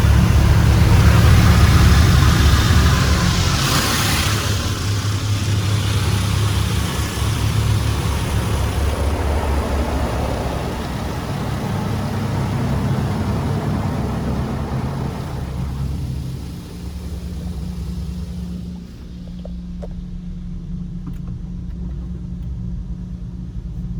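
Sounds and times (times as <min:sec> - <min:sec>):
car wash water rushing: 0:00.0 - 0:19.5
low hum: 0:00.0 - 0:23.9.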